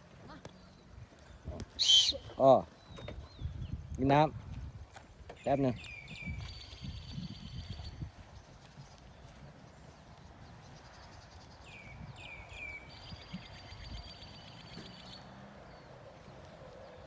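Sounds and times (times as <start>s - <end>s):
faint outdoor background noise: 0.0s - 17.0s
bird chirping: 0.5s - 4.0s, 5.3s - 17.0s
high buzzing bird trill: 1.8s - 2.4s, 5.8s - 8.0s, 11.7s - 15.3s.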